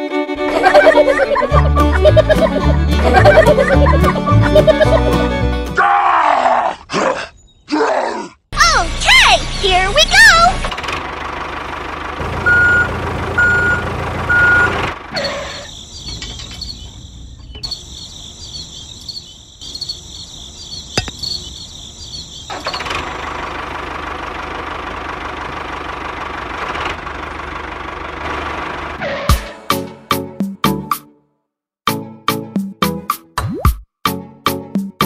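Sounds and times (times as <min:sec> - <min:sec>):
vehicle motor hum: 0:08.8 - 0:29.4.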